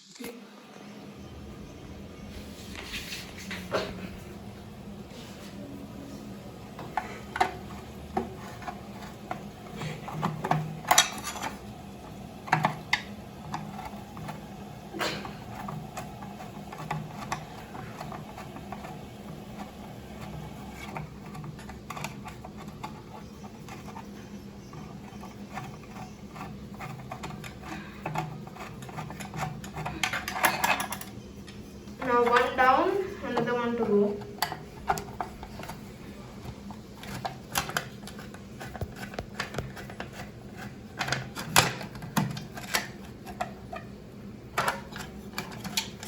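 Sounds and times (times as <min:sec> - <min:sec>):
screwdriver clicking and scraping: 0:15.4 - 0:32.6, 0:36.6 - 0:43.9.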